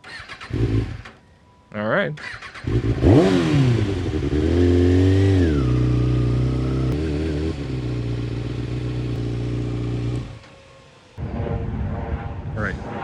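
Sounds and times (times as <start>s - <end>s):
motorcycle engine idling: 4.0s - 11.0s.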